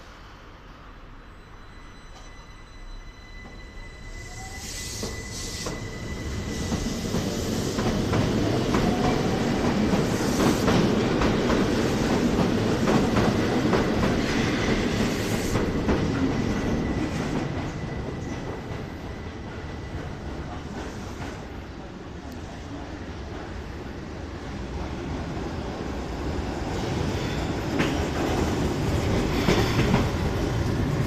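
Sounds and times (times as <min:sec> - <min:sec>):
train passing slowly: 0:00.0 - 0:31.0
wheel squeal: 0:01.4 - 0:07.3.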